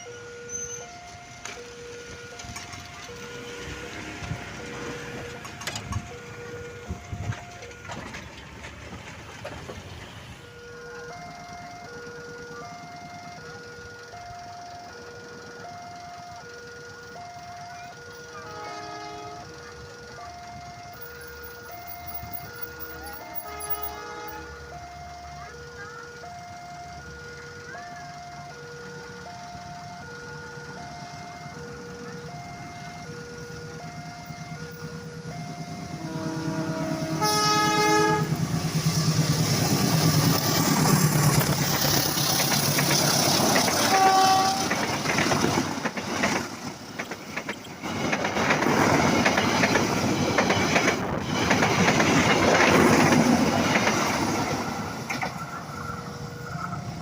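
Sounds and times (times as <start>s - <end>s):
level crossing warning beeps: 0.0s - 8.8s, 9.4s - 57.0s
train passing with wheel clatter: 0.0s - 57.0s
locomotive horn: 18.2s - 19.7s, 22.4s - 24.9s, 33.8s - 39.5s, 43.3s - 45.2s.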